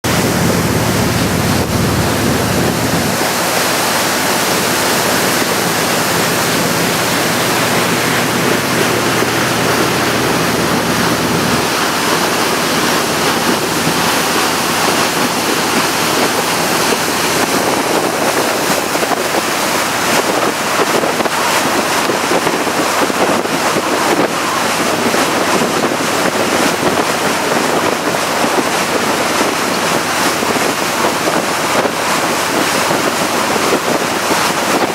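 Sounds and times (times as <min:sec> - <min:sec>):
low hum: 0:00.0 - 0:19.0
water rushing past boat: 0:00.0 - 0:34.9
wind buffeting microphone: 0:00.0 - 0:34.9.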